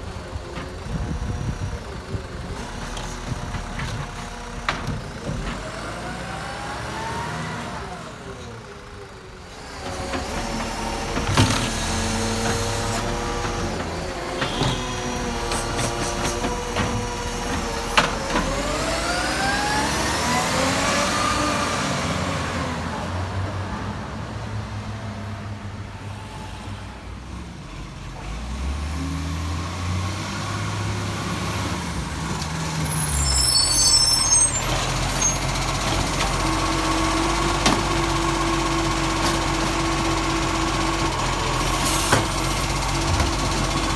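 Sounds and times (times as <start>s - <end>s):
garbage truck diesel engine revving: 0.1s - 25.3s, 27.6s - 43.9s.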